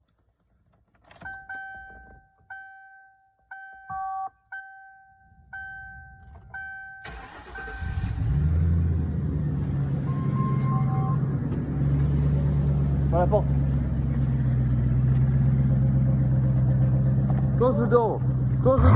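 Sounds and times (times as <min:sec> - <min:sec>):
car warning chime dinging: 0:01.2 - 0:08.1
car engine cranking and idling: 0:03.5 - 0:18.9.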